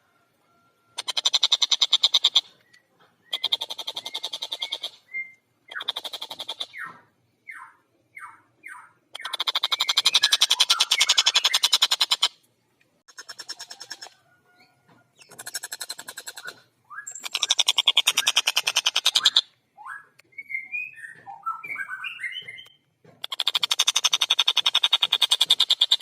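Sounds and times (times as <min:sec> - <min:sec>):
kingfisher chattering: 0:09.2 - 0:12.3, 0:15.2 - 0:19.4.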